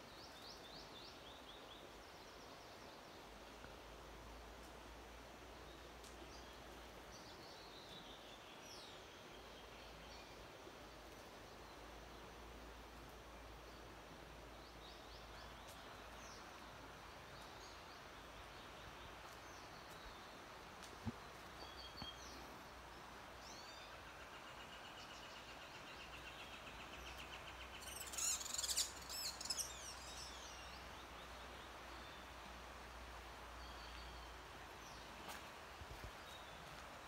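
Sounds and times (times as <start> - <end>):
faint steady hiss: 0.0 - 37.0
birds chirping: 14.7 - 32.4.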